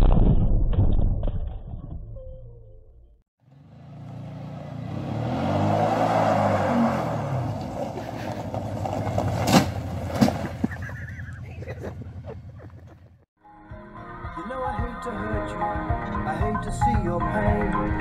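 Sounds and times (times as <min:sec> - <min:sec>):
car engine revving: 0:03.4 - 0:10.6.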